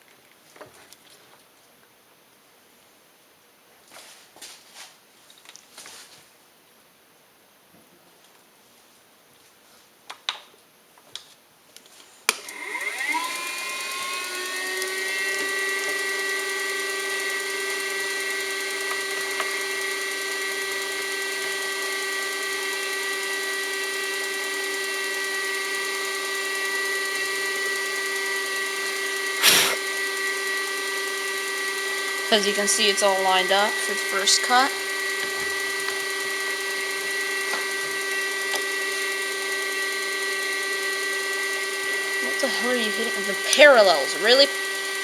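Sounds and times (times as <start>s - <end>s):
milling machine motor whine: 12.4s - 45.0s.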